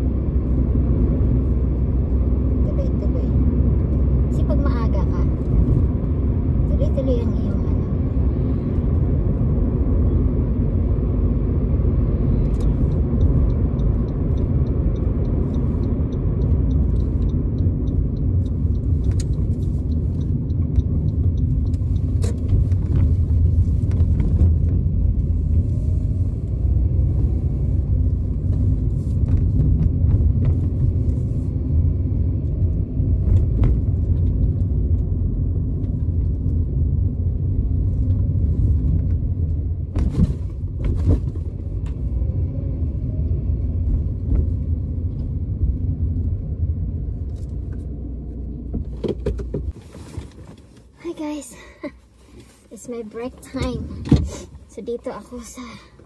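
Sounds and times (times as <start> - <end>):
road and engine rumble in car: 0.0 - 56.0
fast light ticks: 12.5 - 22.7.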